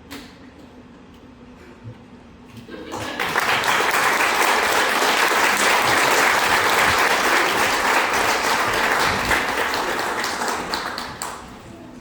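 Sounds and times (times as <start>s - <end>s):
audience applauding: 2.8s - 11.6s.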